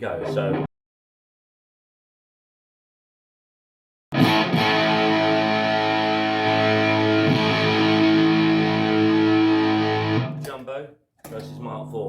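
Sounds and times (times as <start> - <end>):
distorted electric guitar chords: 0.0 - 0.7, 4.1 - 10.5.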